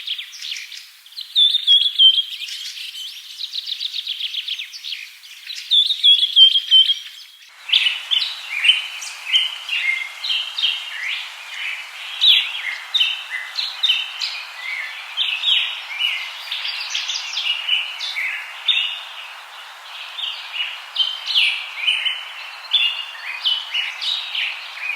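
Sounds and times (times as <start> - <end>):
steady hiss: 7.5 - 24.9.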